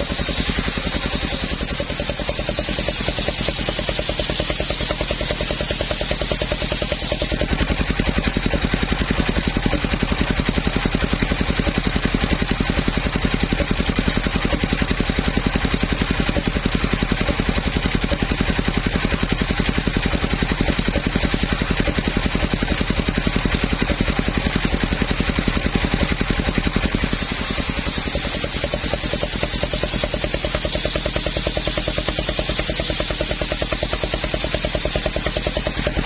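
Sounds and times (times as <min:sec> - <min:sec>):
sawmill engine running: 0:00.0 - 0:36.0
high hiss: 0:27.1 - 0:29.3.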